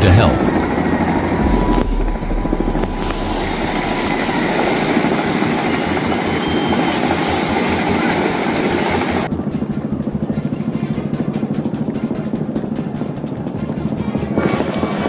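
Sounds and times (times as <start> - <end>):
helicopter rotor chop: 0.0 - 9.4
fast pulsing sound: 0.6 - 9.2.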